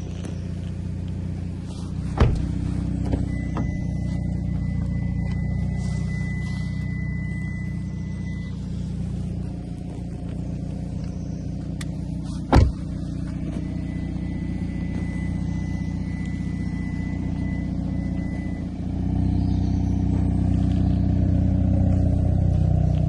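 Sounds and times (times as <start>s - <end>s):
car engine idling: 0.0s - 23.0s
loud thump: 2.2s - 3.8s, 12.5s - 12.9s.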